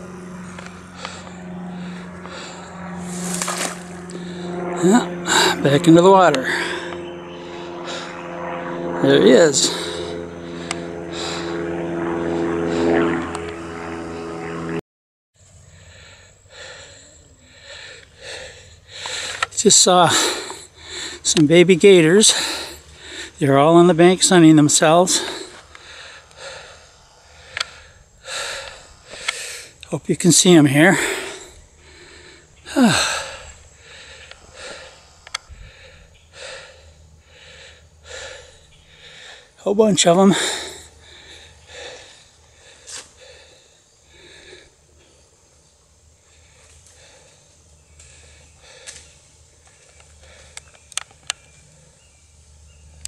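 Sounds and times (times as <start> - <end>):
man breathing heavily: 0.0 - 14.4, 15.4 - 51.2
faint outdoor background: 0.0 - 14.8, 15.4 - 53.0
steady engine drone: 0.0 - 14.8, 15.4 - 53.0
voiced sigh: 30.8 - 39.5.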